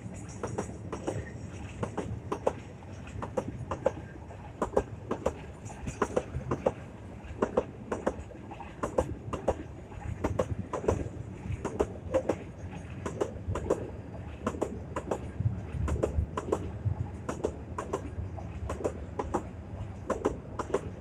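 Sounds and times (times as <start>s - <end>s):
freight train rumbling past: 0.0s - 21.0s
wheels clacking over rail joints: 0.0s - 21.0s.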